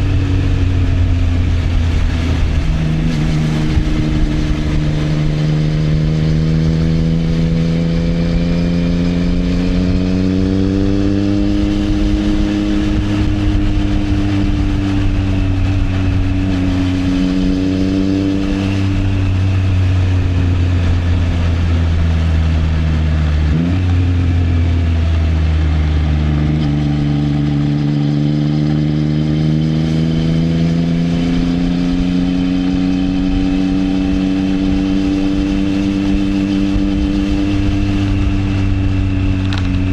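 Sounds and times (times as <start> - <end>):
motorcycle engine cruising: 0.0 - 39.9
motorcycle gear change: 39.3 - 39.9.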